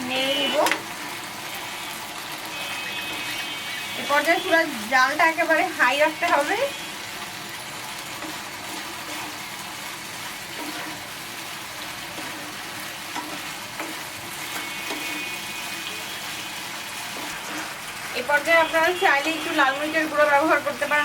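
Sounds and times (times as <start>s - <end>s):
chicken sizzling in a pan: 0.0s - 21.0s
spatula scraping a pan: 2.3s - 4.6s, 7.9s - 20.6s.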